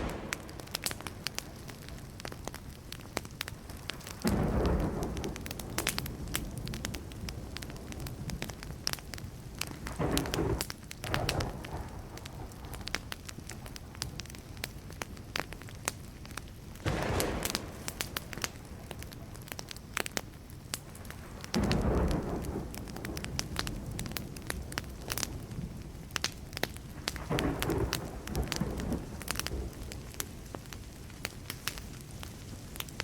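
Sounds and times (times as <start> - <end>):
distant thunder rumbling: 0.0 - 2.4, 4.1 - 8.8, 9.6 - 12.9, 16.8 - 19.8, 20.9 - 26.0, 26.8 - 30.1
wood fire crackling and popping: 0.0 - 33.0.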